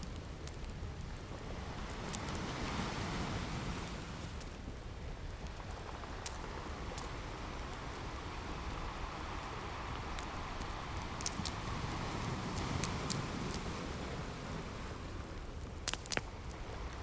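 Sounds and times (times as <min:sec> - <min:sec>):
fireplace crackling: 0:00.0 - 0:17.0
ocean surf: 0:01.4 - 0:04.6, 0:05.8 - 0:15.6
sharp fire pops: 0:15.7 - 0:16.3.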